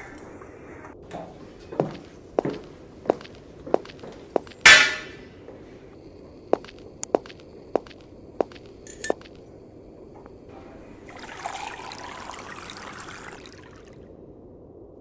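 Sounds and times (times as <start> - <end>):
liquid pouring: 10.8 - 14.1.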